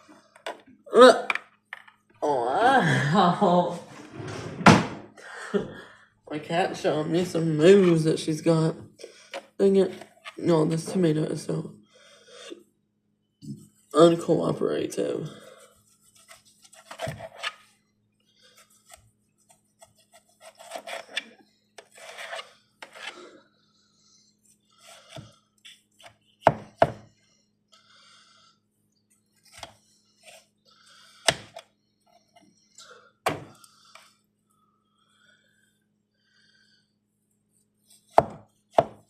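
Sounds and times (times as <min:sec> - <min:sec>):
knife slicing tomatoes: 0:18.9 - 0:23.2.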